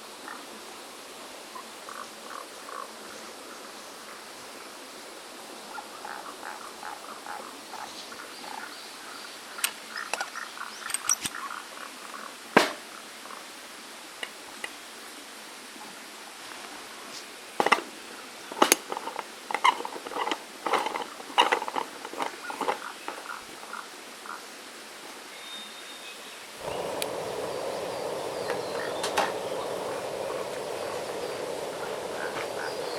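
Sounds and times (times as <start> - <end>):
small stream rushing: 26.2 - 32.9
sharp crackles and clicks: 26.6 - 32.9.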